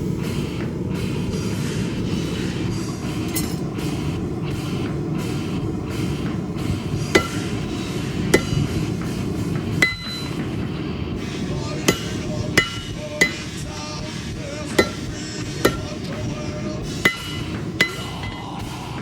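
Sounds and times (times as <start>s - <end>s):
forge burner roaring: 0.0s - 19.0s
metallic clinks of steel: 3.3s - 3.7s.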